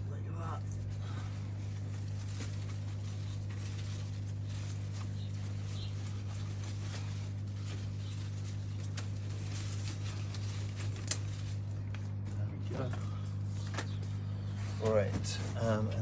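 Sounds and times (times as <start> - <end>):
steady low hum: 0.0 - 16.0
leaves rustling and clicking: 0.8 - 12.8.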